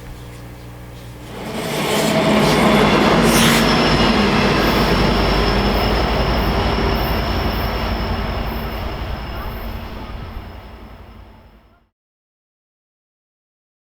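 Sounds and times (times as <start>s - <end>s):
high wheel squeal: 1.1s - 11.8s
train wheels rumbling on rails: 1.1s - 11.8s.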